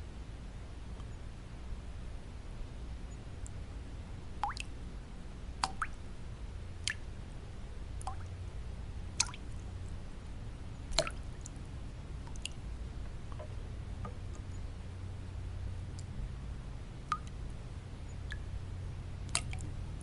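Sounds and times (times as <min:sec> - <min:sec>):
low white-noise hum: 0:00.0 - 0:20.0
water drops plinking: 0:04.4 - 0:04.7, 0:05.6 - 0:06.0, 0:10.9 - 0:11.2, 0:19.3 - 0:19.7.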